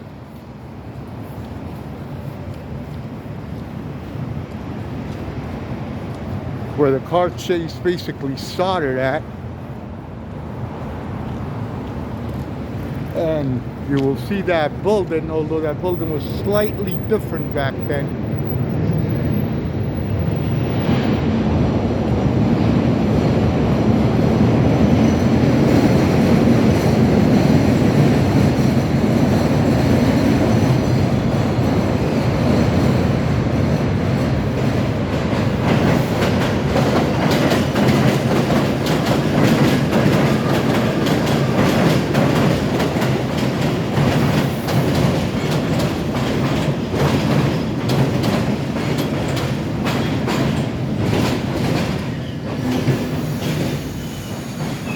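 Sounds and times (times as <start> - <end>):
elevated train rumbling: 0.0 - 54.9
wheels clattering over rail joints: 24.8 - 54.9.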